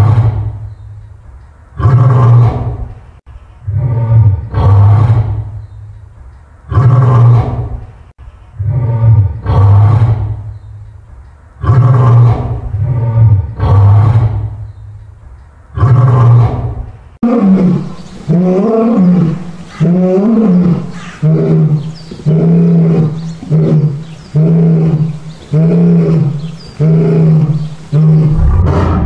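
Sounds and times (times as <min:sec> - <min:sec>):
lions roaring: 0:15.8 - 0:29.0.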